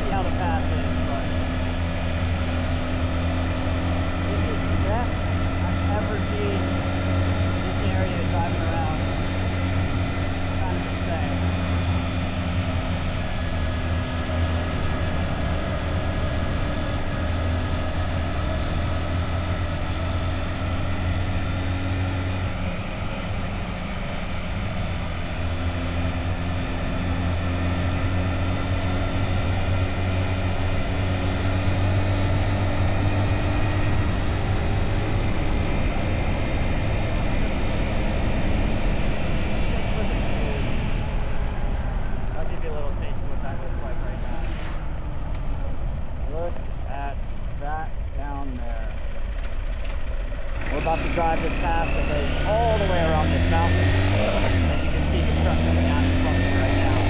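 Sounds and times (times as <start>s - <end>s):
motorbike engine running: 0.0s - 57.0s.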